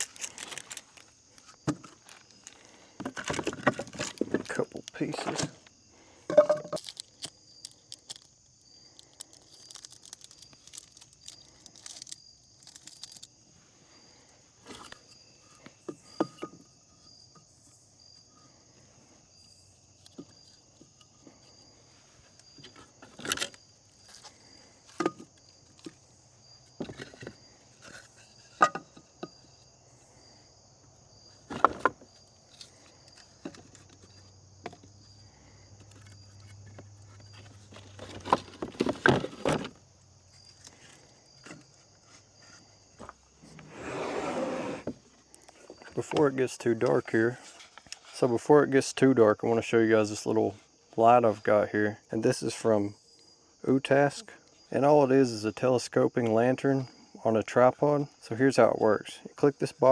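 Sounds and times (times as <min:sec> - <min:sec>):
insects chirping: 0:00.0 - 0:59.9
firewood knocking and clattering: 0:01.6 - 0:05.6, 0:06.3 - 0:06.9, 0:26.8 - 0:29.4, 0:31.4 - 0:32.2.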